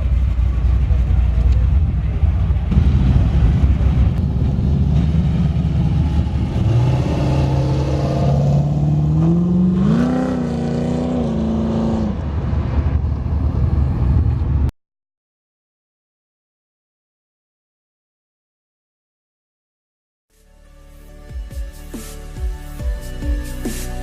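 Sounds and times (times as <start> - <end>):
car engine revving: 0.0 - 14.4.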